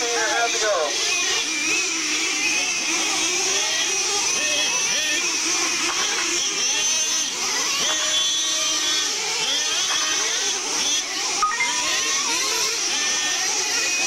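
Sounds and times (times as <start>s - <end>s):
rc truck engines buzzing: 0.0s - 14.0s.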